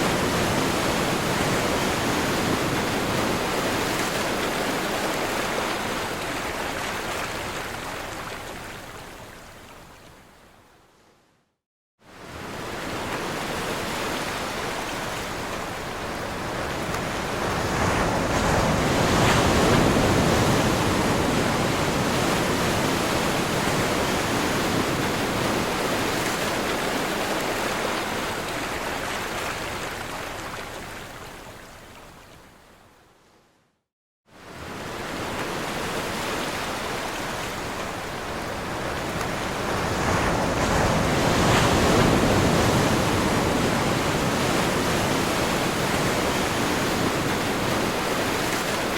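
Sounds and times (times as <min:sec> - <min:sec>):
ocean waves breaking: 0:12.2 - 0:30.8, 0:34.4 - 0:48.9.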